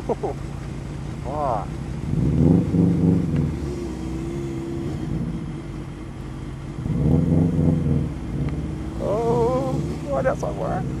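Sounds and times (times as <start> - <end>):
motor vehicle engines running: 0.0 - 11.0.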